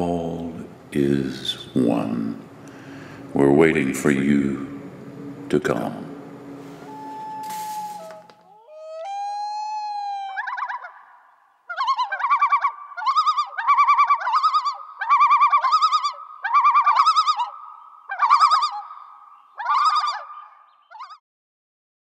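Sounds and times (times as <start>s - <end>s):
bird quavering calls: 6.5s - 21.2s.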